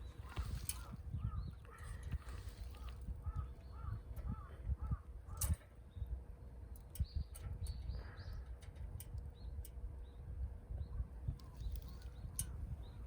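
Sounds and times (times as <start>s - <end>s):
birds calling: 0.0s - 6.1s.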